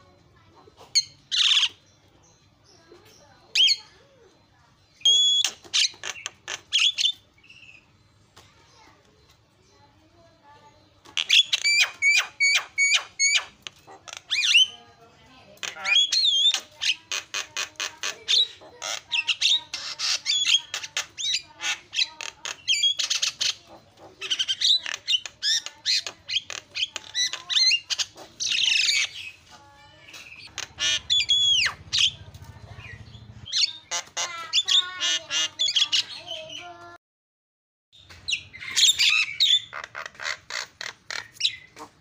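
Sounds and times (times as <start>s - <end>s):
myna singing with clicks and whistles: 3.5s - 7.9s, 11.0s - 14.9s, 15.6s - 29.4s, 30.1s - 33.9s.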